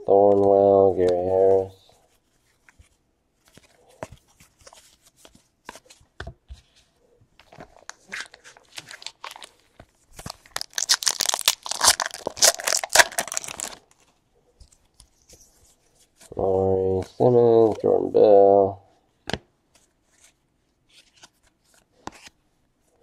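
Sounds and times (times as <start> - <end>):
cards clicking and rustling: 7.4 - 15.4
wrapper tearing and crinkling: 7.8 - 9.6, 10.2 - 14.0.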